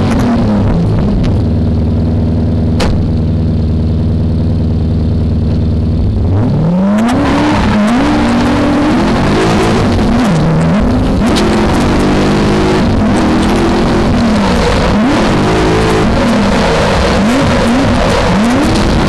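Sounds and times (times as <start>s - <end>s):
engine revving and accelerating: 5.5s - 19.0s.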